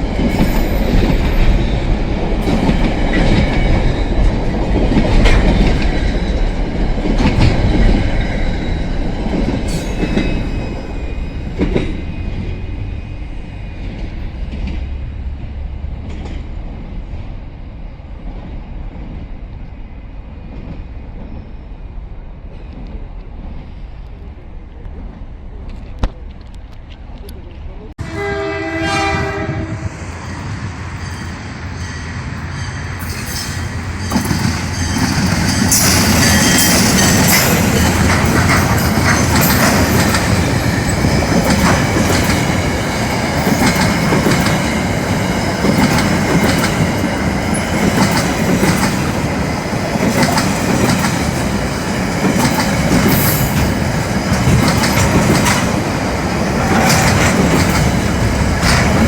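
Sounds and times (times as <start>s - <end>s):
wheels clacking over rail joints: 0.0s - 12.6s, 30.9s - 59.0s
freight train rolling past: 0.0s - 59.0s
train horn: 28.0s - 30.2s.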